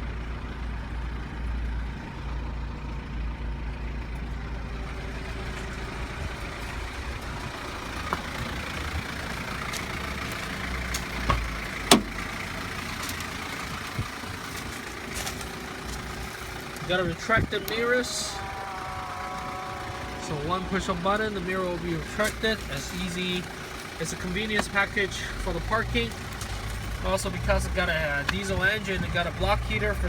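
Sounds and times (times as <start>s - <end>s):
diesel engine idling: 0.0s - 30.0s
sharp clicks and knocks: 10.9s - 12.2s.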